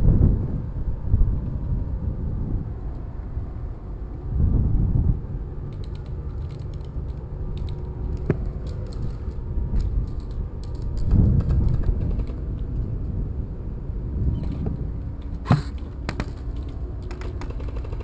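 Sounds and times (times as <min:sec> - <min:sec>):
wind and movement rumble: 0:00.0 - 0:18.0
airsoft guns firing: 0:15.4 - 0:16.3.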